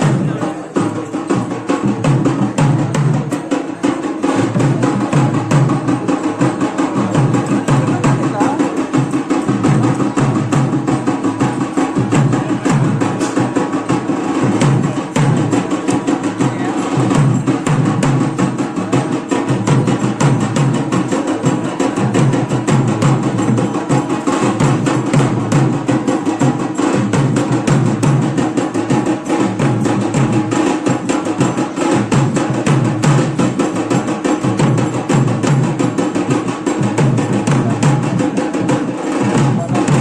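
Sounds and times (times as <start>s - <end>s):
drum percussion music: 0.0s - 40.0s.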